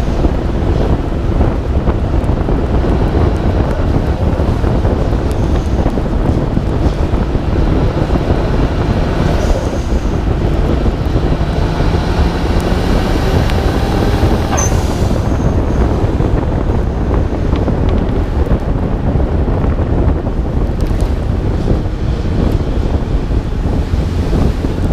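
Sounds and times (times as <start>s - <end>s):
faint car engine: 0.0s - 18.8s
wind buffeting microphone: 0.0s - 24.9s.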